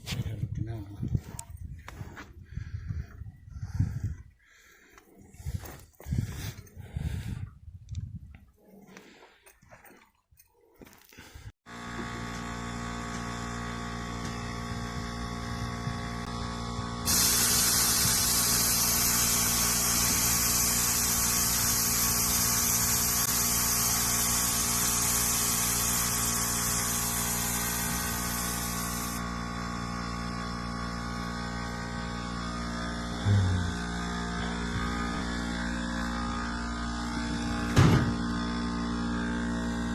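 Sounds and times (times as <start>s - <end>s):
motor humming: 11.7s - 39.9s
loud high hiss: 17.1s - 29.2s.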